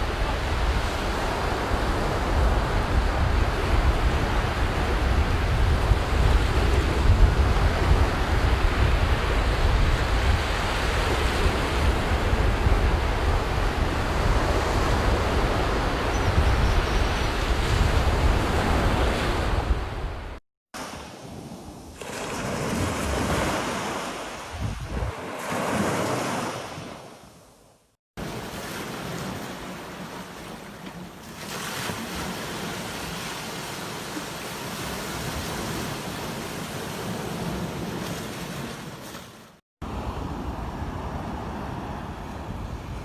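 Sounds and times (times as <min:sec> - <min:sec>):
wind buffeting microphone: 0:00.0 - 0:20.4, 0:24.5 - 0:25.2
ocean surf on a beach: 0:00.0 - 0:27.5, 0:28.2 - 0:43.0.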